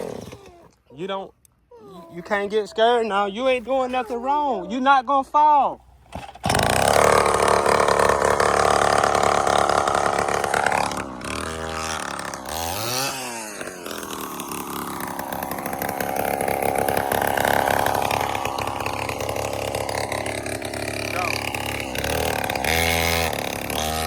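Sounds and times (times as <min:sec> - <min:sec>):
dirt bike engine running: 0:06.0 - 0:24.0.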